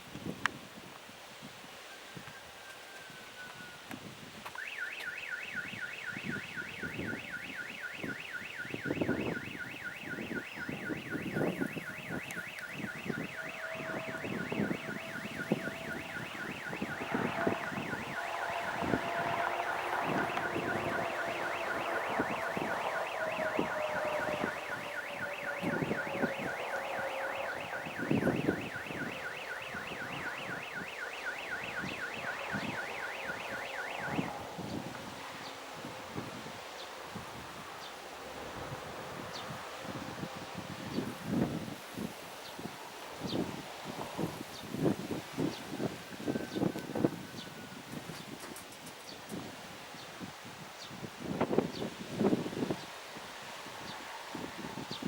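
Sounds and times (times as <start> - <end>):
wind buffeting microphone: 0.0 - 55.0
high pulsing beeps: 4.6 - 34.4.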